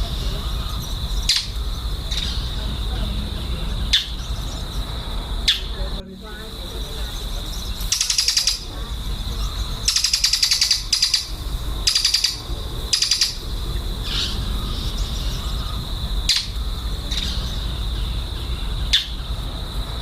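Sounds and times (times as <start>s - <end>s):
lovebirds chattering: 0.0s - 20.0s.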